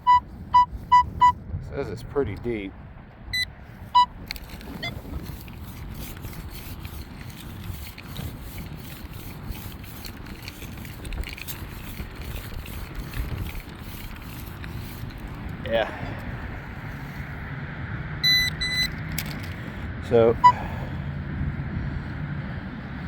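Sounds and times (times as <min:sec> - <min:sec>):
metal detector beeps: 0:00.0 - 0:01.4, 0:03.3 - 0:05.2, 0:18.2 - 0:19.1, 0:20.4 - 0:20.7
wind on microphone: 0:00.0 - 0:20.0
scraping and rubbing: 0:04.2 - 0:15.8.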